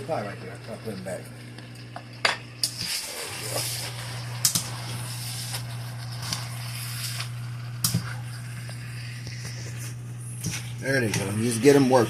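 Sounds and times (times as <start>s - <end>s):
steady low hum: 0.0s - 12.0s
food sizzling in a pan: 1.9s - 10.8s.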